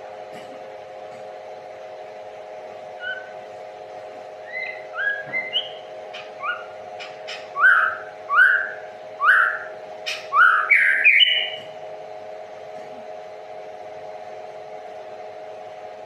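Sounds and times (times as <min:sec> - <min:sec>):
steady hum: 0:00.0 - 0:16.0
songbird whistling: 0:03.0 - 0:03.4, 0:04.4 - 0:11.6.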